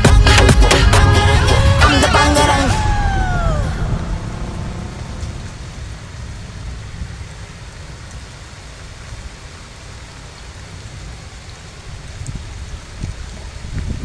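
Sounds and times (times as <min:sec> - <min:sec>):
heavy rain pouring: 0:00.0 - 0:14.0
low rumble: 0:00.9 - 0:08.5.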